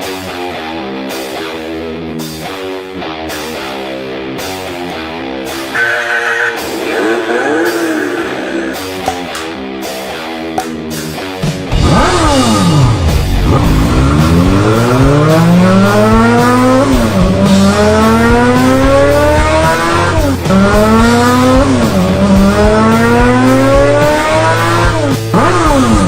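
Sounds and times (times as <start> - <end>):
motorcycle engine accelerating: 11.7 - 26.0.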